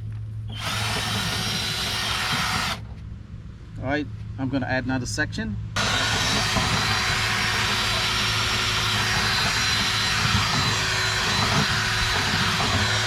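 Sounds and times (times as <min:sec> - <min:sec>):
power drill spinning brush in duct: 0:00.5 - 0:02.8, 0:05.8 - 0:13.0.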